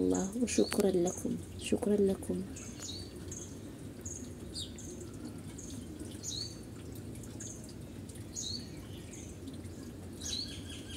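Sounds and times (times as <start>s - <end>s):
small bird chirping: 2.5s - 6.6s.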